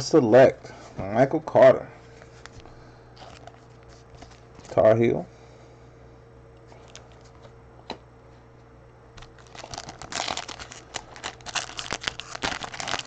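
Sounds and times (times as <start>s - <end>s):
cards rustling and crinkling: 2.4s - 4.8s, 9.2s - 13.0s.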